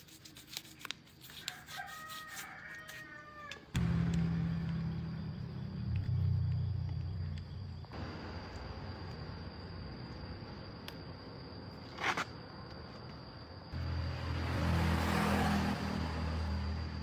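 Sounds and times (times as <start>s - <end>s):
machine humming: 3.8s - 10.6s.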